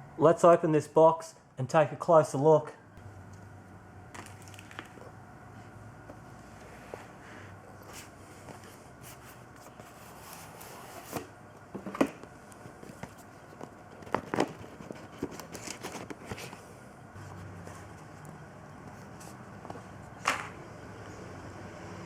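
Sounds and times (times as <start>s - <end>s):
packaging crinkling: 4.1s - 5.1s
parts scraping and knocking: 7.8s - 18.2s.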